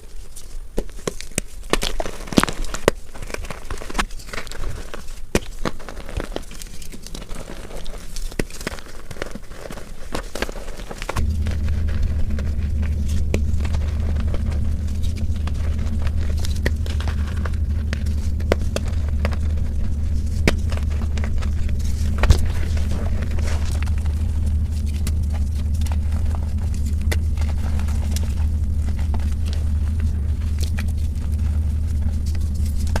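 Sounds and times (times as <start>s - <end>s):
chalk crunching and crackling: 0.0s - 33.0s
steady low rumble: 11.2s - 33.0s.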